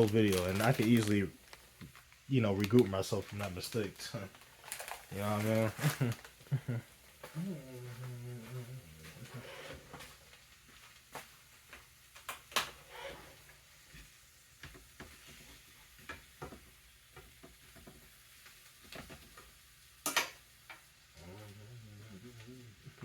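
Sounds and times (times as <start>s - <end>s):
food frying in a pan: 0.0s - 7.4s, 9.0s - 23.0s
utensils and cookware clicking: 18.8s - 20.8s.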